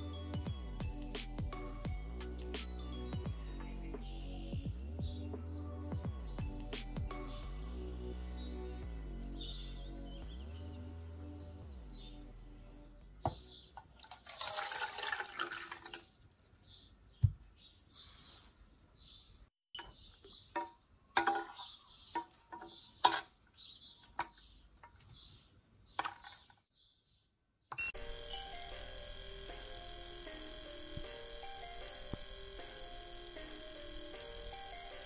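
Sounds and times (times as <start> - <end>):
small parts plopping into water: 14.0 - 16.6.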